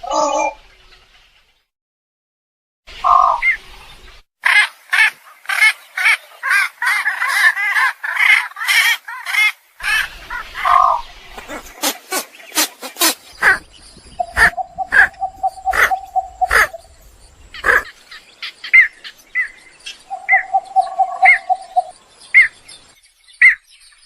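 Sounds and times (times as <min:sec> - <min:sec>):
egret calls: 0:10.6 - 0:13.6, 0:14.2 - 0:16.8, 0:17.6 - 0:17.9.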